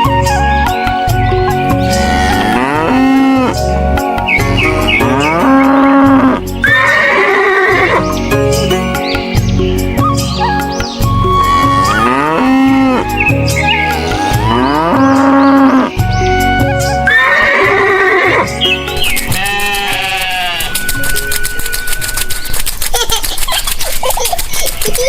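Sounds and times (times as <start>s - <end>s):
background music: 0.0s - 23.1s
farm animal calls: 1.5s - 3.6s, 4.3s - 8.1s, 10.4s - 16.0s, 17.1s - 22.6s.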